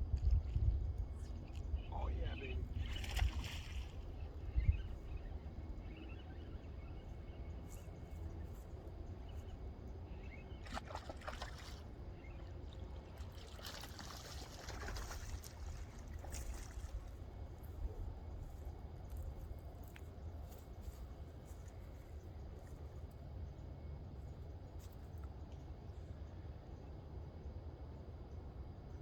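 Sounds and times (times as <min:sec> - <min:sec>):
wind rumble on microphone: 0:00.0 - 0:10.3
water splashing and trickling: 0:02.8 - 0:04.4, 0:10.6 - 0:17.3.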